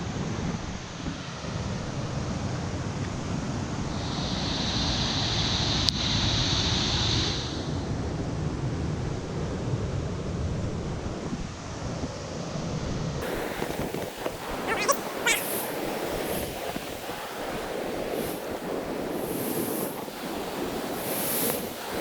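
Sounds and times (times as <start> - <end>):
whitewater rushing: 13.2 - 22.0
wind on microphone: 13.2 - 22.0.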